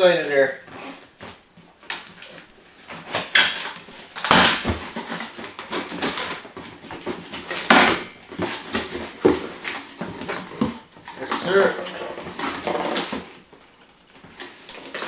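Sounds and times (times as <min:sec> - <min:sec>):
cardboard scraping and tearing: 0:02.1 - 0:13.4, 0:14.3 - 0:15.0.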